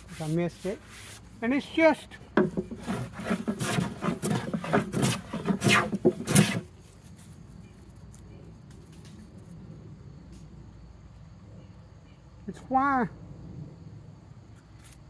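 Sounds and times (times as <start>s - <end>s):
hand plane strokes on wood: 2.4s - 6.7s.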